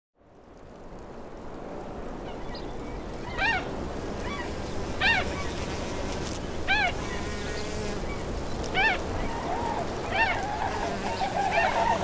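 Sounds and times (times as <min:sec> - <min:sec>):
background hiss: 0:02.4 - 0:12.0
bird honking calls: 0:08.8 - 0:12.0.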